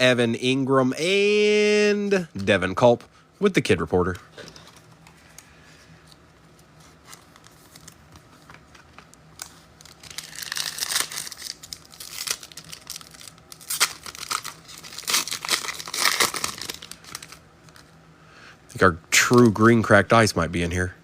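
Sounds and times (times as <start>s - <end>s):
foil wrapper crinkling: 6.8s - 17.9s.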